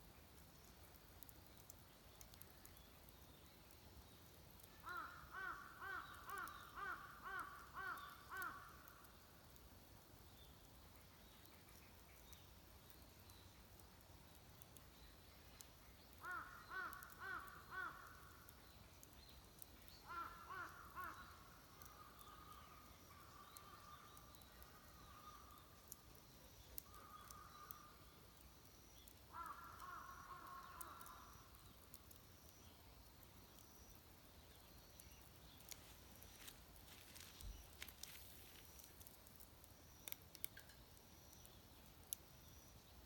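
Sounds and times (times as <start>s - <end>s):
crows cawing faintly: 4.8s - 9.2s, 16.1s - 18.6s, 20.0s - 25.9s, 26.8s - 28.2s, 29.2s - 32.0s.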